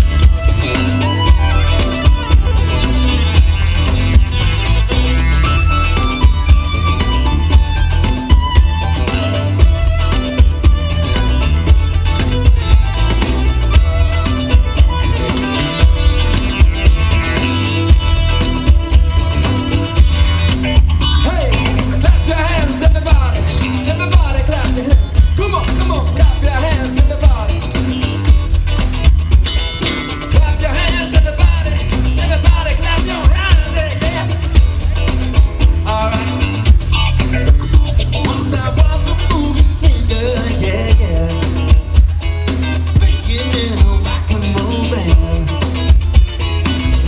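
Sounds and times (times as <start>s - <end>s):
bass line: 0.0s - 47.0s
drums: 0.0s - 47.0s
guitar: 0.0s - 47.0s
person singing: 38.1s - 41.8s, 43.0s - 45.8s.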